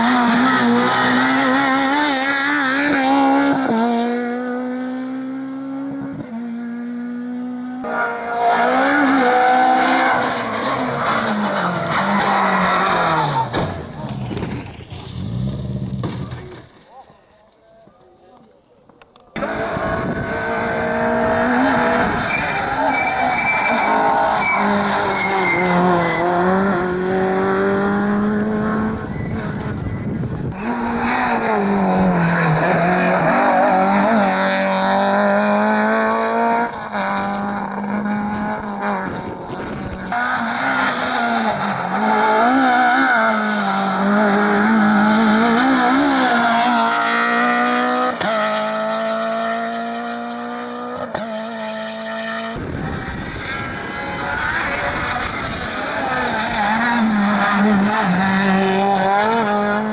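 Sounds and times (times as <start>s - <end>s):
rally car engines revving: 0.0s - 16.9s, 19.2s - 59.9s.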